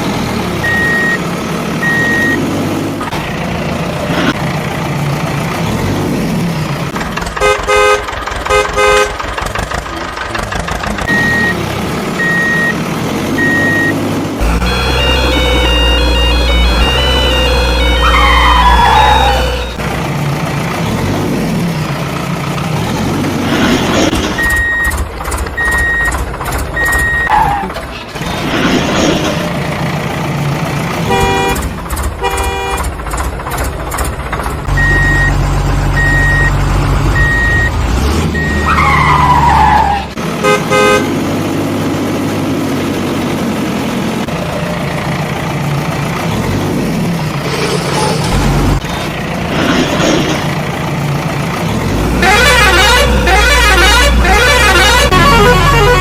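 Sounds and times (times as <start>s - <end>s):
heavy construction vehicles running: 0.0s - 56.0s
vehicle horn toots: 7.4s - 9.2s, 14.4s - 19.8s, 31.1s - 32.9s, 40.4s - 41.1s, 52.2s - 56.0s
backup alarm beeping: 13.4s - 19.8s, 34.7s - 35.4s, 36.0s - 36.5s.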